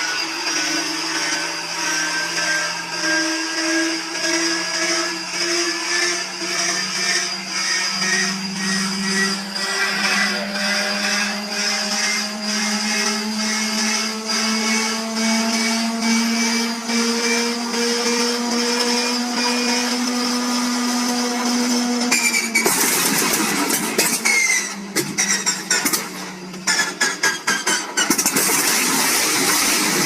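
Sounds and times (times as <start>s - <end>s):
inertia starter whine: 0.0s - 30.0s
radial engine firing roughly: 22.1s - 30.0s.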